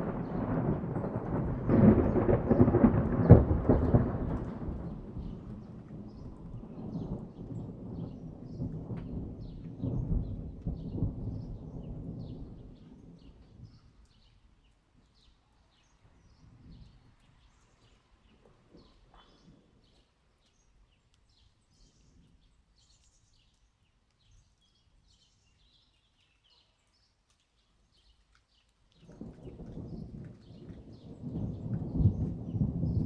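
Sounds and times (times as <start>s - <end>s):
distant thunder rumble: 0.0s - 14.2s, 29.0s - 33.0s
small birds chirping: 5.2s - 33.0s.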